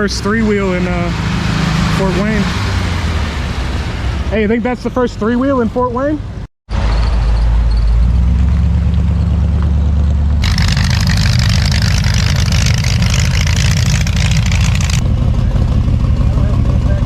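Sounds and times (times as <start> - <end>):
vehicle engine rumbling: 6.8 - 17.0.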